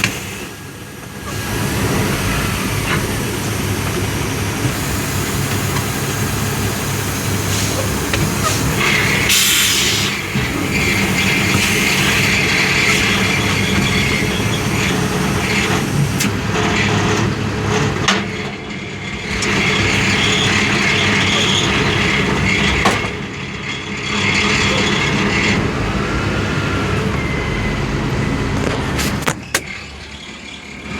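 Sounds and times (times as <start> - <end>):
truck engine running: 0.0 - 30.9
hiss: 4.7 - 14.8.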